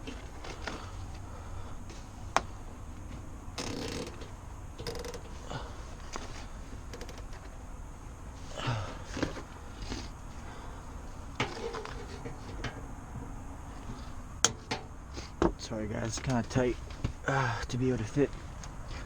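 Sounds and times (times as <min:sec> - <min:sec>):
rustling of wiring: 0:00.0 - 0:19.0
clicks and knocks handling parts: 0:06.0 - 0:07.6, 0:11.3 - 0:17.2.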